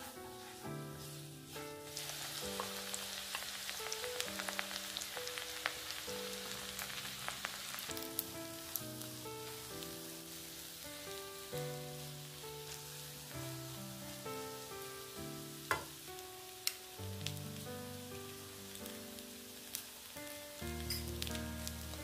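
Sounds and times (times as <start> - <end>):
spatula stirring rice: 0.0 - 3.7, 9.4 - 13.3
background music: 0.0 - 22.0
oil sizzling in a wok: 0.0 - 22.0.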